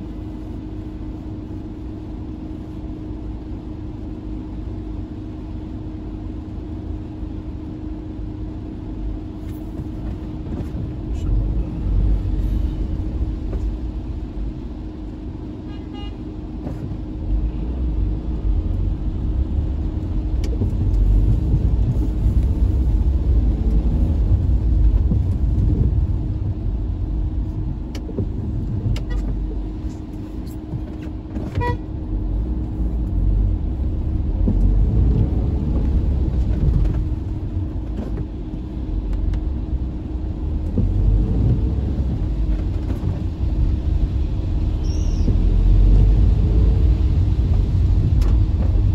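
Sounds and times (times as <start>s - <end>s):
car engine and road rumble: 0.0s - 48.9s
car horn toots: 15.7s - 16.2s, 31.6s - 31.9s.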